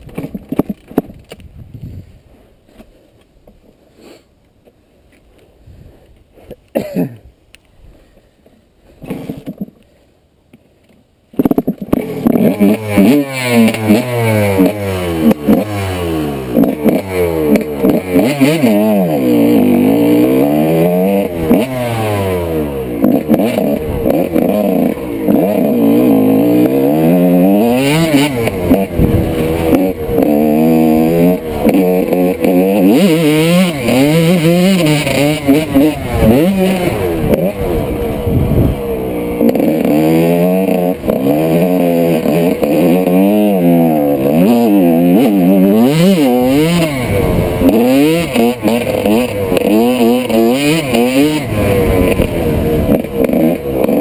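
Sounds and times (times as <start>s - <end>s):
motocross engine revving: 11.4s - 54.0s.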